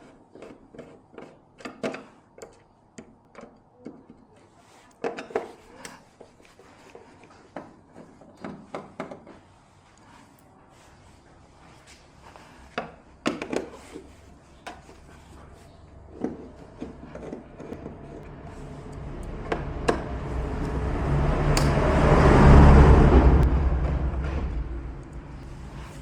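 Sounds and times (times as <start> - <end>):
sharp knocks and clicks: 16.1 - 20.8
motor vehicle passing by: 16.5 - 26.0.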